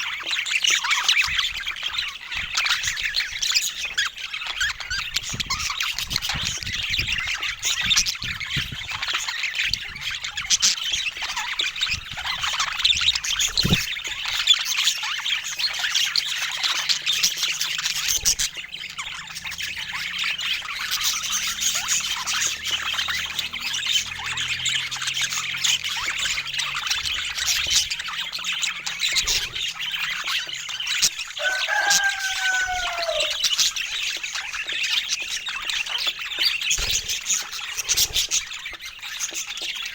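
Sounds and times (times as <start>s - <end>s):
budgies chattering and chirping: 0.0s - 39.9s
drawn-out falling bird call: 16.9s - 34.6s.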